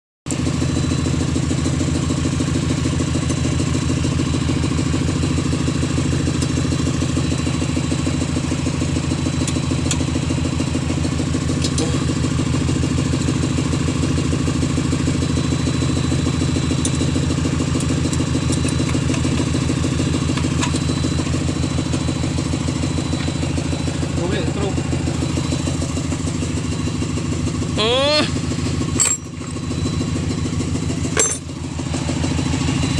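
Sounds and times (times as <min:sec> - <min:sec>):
engine idling: 0:00.3 - 0:32.9.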